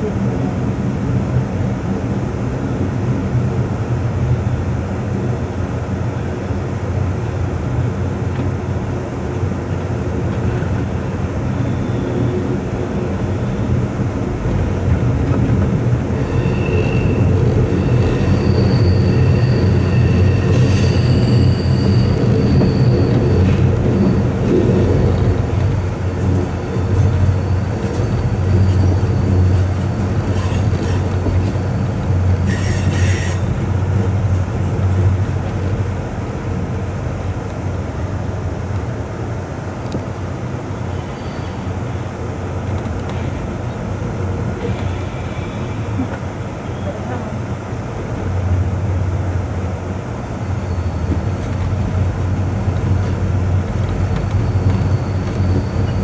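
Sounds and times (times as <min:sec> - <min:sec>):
train wheels rumbling on rails: 0:00.0 - 0:56.0
high wheel squeal: 0:16.0 - 0:24.5, 0:26.8 - 0:33.6, 0:40.9 - 0:42.0, 0:50.2 - 0:56.0.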